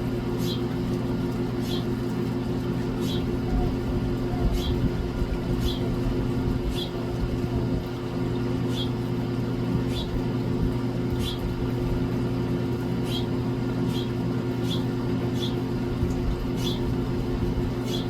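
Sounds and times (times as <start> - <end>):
low machine hum: 0.0 - 18.0
small bird chirping: 0.4 - 0.6, 1.6 - 1.9, 5.6 - 5.9, 8.7 - 9.0, 9.9 - 10.2, 11.2 - 11.4, 13.0 - 13.3, 13.9 - 15.6, 16.6 - 16.8.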